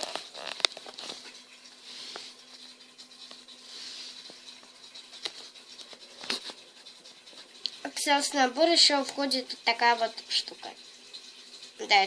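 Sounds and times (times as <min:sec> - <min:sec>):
soft scratching and rustling: 0:00.0 - 0:07.7.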